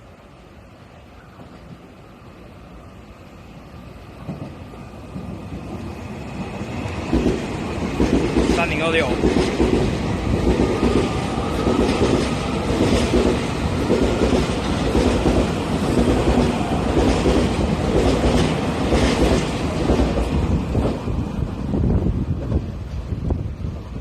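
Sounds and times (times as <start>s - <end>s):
train wheels rumbling on rail: 0.0s - 24.0s
train cars clattering: 4.1s - 23.2s.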